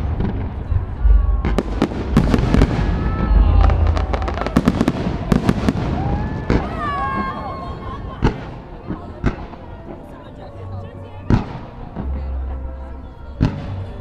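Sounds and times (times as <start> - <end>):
deep booming rumble: 0.0 - 6.7
fireworks bangs and crackles: 0.0 - 10.1, 11.2 - 12.5, 13.4 - 14.0.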